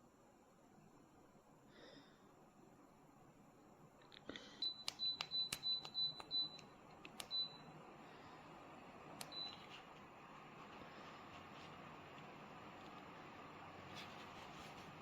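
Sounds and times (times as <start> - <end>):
fan airflow hiss: 0.0 - 15.0
fan button clicks: 4.6 - 7.6, 9.1 - 9.8.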